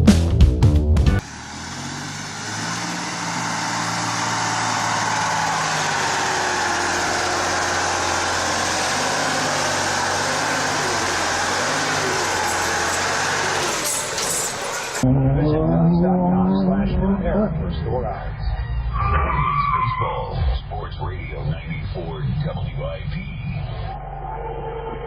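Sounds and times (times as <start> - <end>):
music: 0.0 - 1.2
engine hum: 1.0 - 19.0
road and tyre noise: 1.2 - 21.7.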